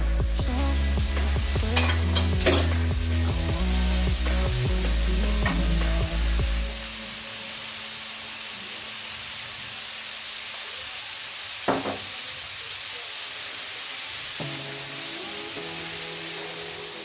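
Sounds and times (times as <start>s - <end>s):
food sizzling in a pan: 0.0s - 17.0s
single knock: 11.7s - 12.0s.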